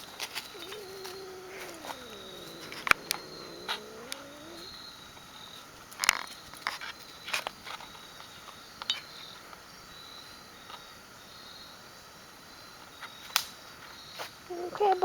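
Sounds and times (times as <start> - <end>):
faint high insect trilling: 0.5 - 4.8
sharp clicks: 0.6 - 4.7.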